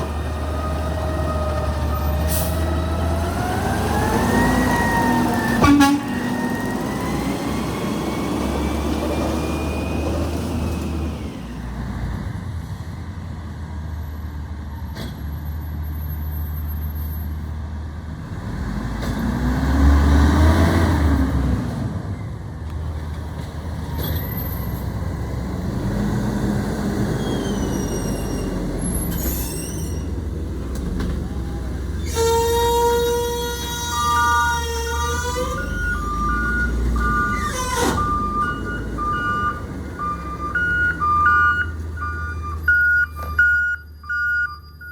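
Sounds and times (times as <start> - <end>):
garbage truck engine revving: 0.0 - 11.5, 18.3 - 22.0, 30.0 - 42.6.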